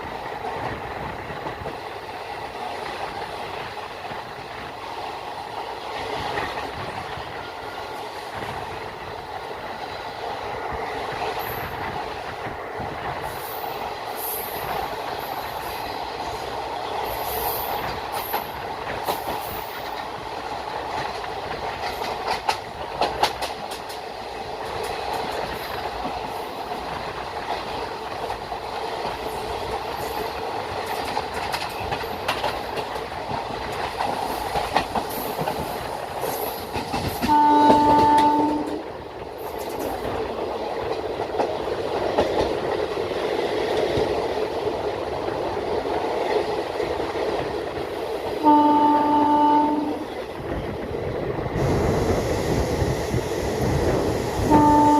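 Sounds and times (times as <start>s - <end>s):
wheels clicking over rail joints: 0.0s - 52.0s
passenger train rumbling on track: 0.0s - 54.9s
locomotive horn blast: 37.3s - 38.8s, 48.4s - 50.1s, 54.5s - 54.9s.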